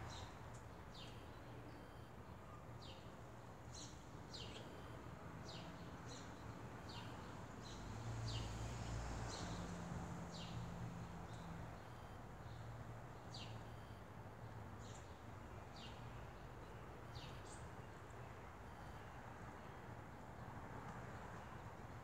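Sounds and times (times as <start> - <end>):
songbird chirping: 0.0 - 8.6.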